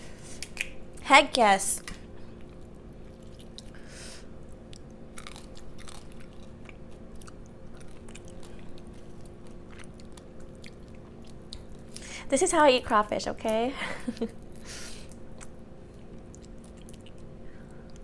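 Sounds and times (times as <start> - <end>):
steady low hum: 0.0 - 18.0
wet chewing crunches: 2.4 - 3.8, 4.4 - 12.1, 14.2 - 18.0.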